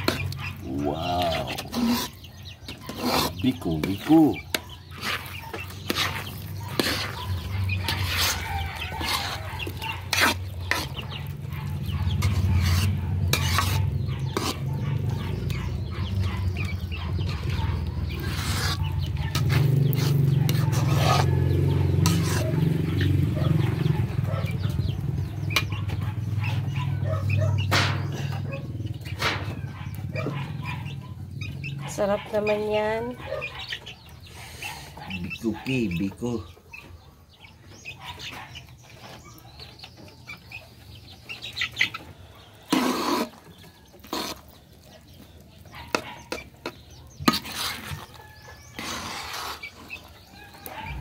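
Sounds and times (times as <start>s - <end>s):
chickens clucking: 0.0s - 51.0s
metal ladle scraping pan: 1.3s - 14.7s, 17.4s - 22.7s, 42.6s - 43.4s, 44.0s - 44.5s, 45.9s - 50.1s.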